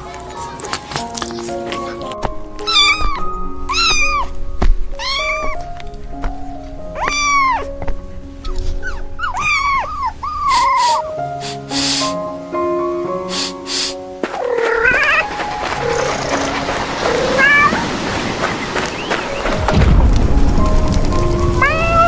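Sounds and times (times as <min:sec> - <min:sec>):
background music: 0:00.0 - 0:22.0
cat meowing: 0:02.6 - 0:04.3, 0:05.0 - 0:05.6, 0:07.0 - 0:07.7, 0:14.2 - 0:17.9, 0:21.6 - 0:22.0.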